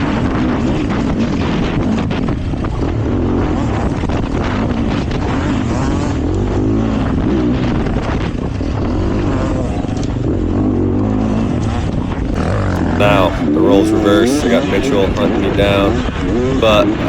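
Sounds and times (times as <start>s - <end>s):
dirt bike engine revving: 12.3s - 17.0s.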